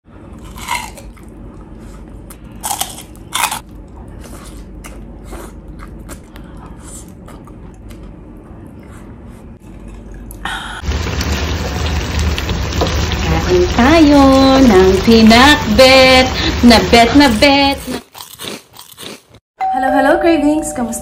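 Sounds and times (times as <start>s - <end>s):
person crunching and chewing: 0.3s - 8.2s, 17.8s - 19.4s.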